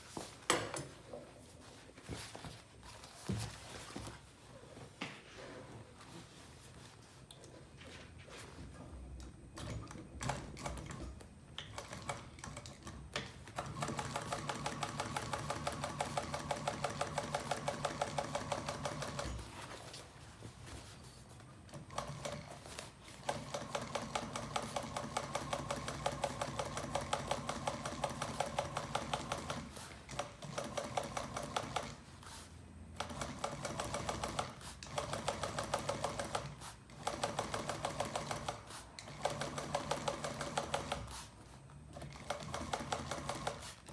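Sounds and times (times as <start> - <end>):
sewing machine stitching: 9.6 - 19.5, 21.7 - 32.0, 33.0 - 41.3, 41.9 - 43.9.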